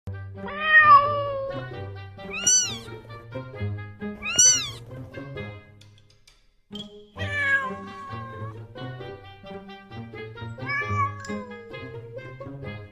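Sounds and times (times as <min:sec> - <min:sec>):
background music: 0:00.1 - 0:12.9
cat meowing: 0:00.4 - 0:01.7, 0:02.3 - 0:02.9, 0:04.2 - 0:04.8, 0:07.2 - 0:08.6, 0:10.6 - 0:11.7.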